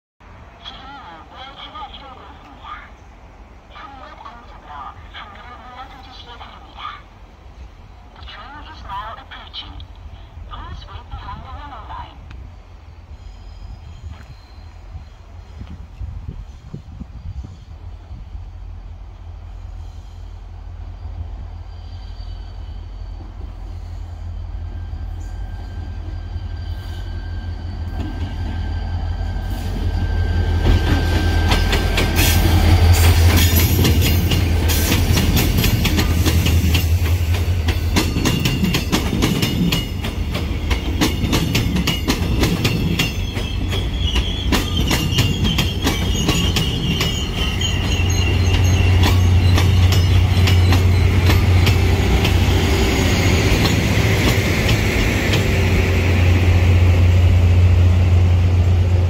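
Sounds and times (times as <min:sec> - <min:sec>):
locomotive engine drone: 0:17.9 - 0:59.0
high wheel squeal: 0:21.0 - 0:33.2, 0:42.7 - 0:54.2.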